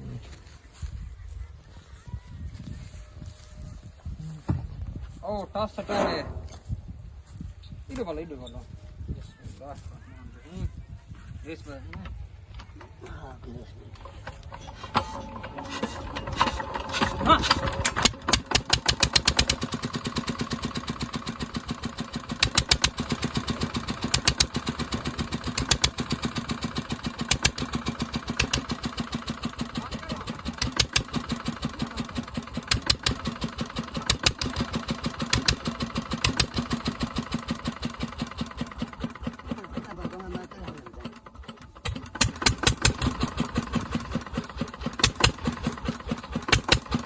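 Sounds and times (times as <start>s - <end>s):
diesel engine running with knock: 13.9s - 47.0s.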